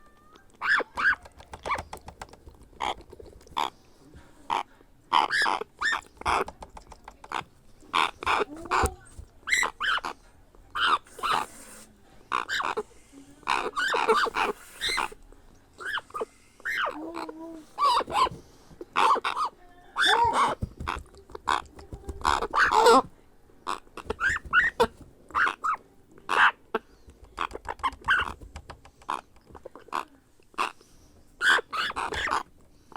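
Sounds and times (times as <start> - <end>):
parrot chick calling: 0.6 - 1.9, 4.5 - 6.5, 7.3 - 11.6, 12.3 - 12.9, 13.5 - 15.2, 15.8 - 18.4, 19.0 - 23.1, 23.7 - 26.6, 31.4 - 32.5.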